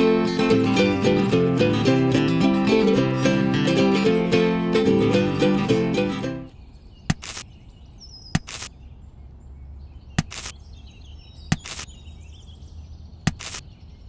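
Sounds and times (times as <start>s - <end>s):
faint birdsong: 6.4s - 14.0s
tomatoes snapping off stems: 7.1s - 7.4s, 8.4s - 8.7s, 10.2s - 10.6s, 11.5s - 11.9s, 13.3s - 13.7s.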